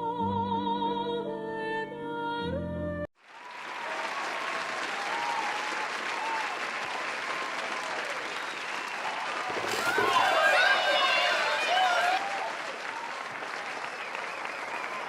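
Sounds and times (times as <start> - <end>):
crowd applauding: 3.2 - 15.0
voices calling: 9.4 - 12.9.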